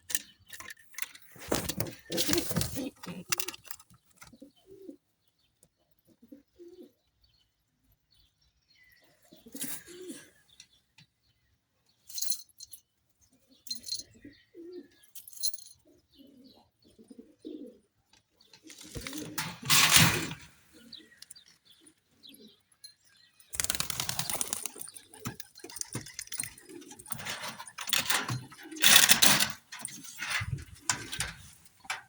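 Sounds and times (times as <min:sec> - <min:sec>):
pigeons cooing: 0:01.4 - 0:05.0, 0:06.0 - 0:07.0, 0:09.3 - 0:10.4, 0:14.1 - 0:15.0, 0:15.8 - 0:18.0, 0:18.6 - 0:22.6, 0:23.6 - 0:32.0
rustling: 0:18.7 - 0:20.6, 0:23.6 - 0:32.0.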